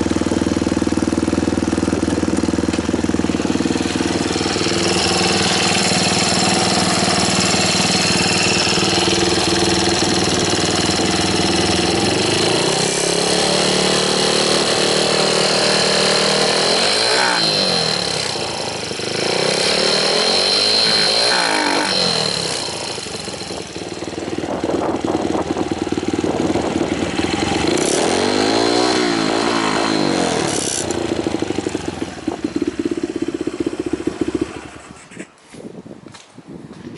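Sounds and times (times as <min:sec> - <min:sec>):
motorcycle engine idling: 0:00.0 - 0:35.2
motorcycle throttle blips: 0:00.1 - 0:13.7.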